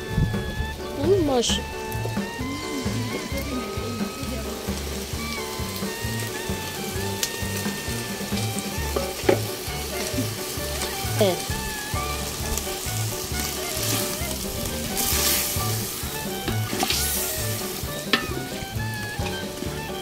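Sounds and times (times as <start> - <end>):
background music with beat: 0.0 - 20.0
chicken sizzling in a pot: 0.0 - 20.0
wooden spoon scraping and knocking: 8.6 - 11.0.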